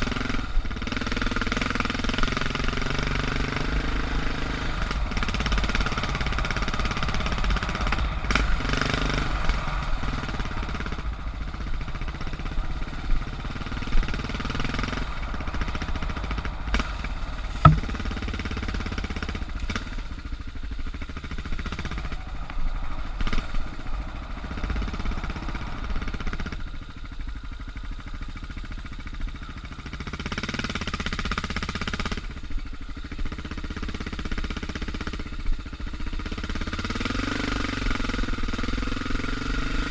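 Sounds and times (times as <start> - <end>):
motorcycle engine revving: 0.0 - 39.9
sharp knock: 17.5 - 18.0.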